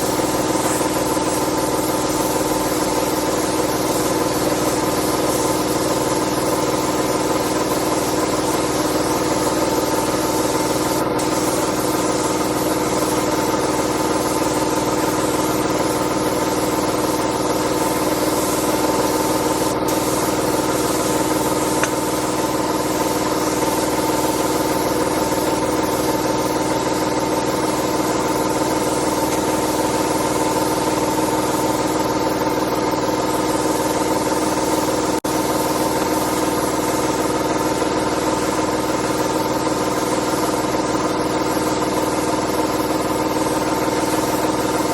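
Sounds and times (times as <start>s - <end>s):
machine motor running: 0.0s - 34.7s.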